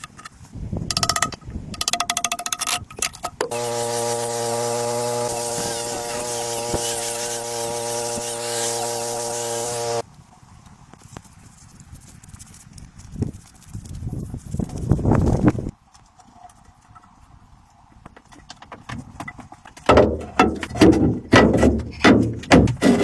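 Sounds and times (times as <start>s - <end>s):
mechanical buzz: 3.4s - 10.0s.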